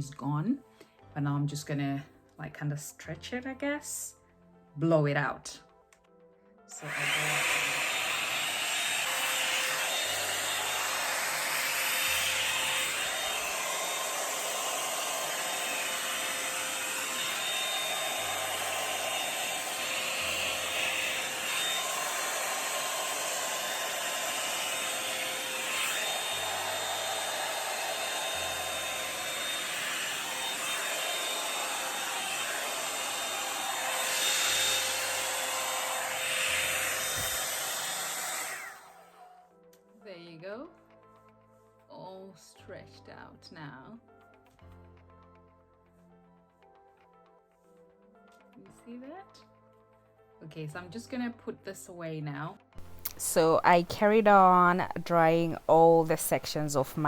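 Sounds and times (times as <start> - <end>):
hair dryer brush running: 6.7 - 39.4, 52.8 - 57.0.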